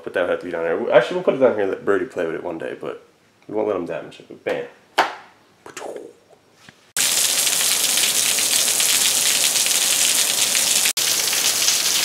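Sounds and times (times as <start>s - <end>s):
heavy rain spilling over gutters: 7.0s - 12.0s.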